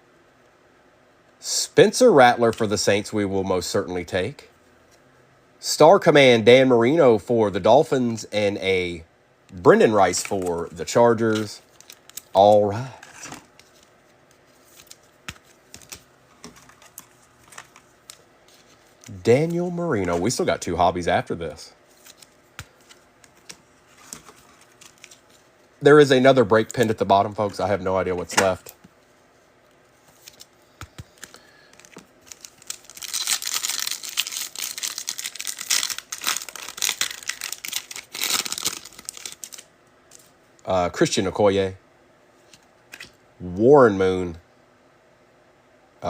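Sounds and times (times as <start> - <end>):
foil wrapper crinkling and tearing: 10.0 - 13.3, 31.2 - 40.3.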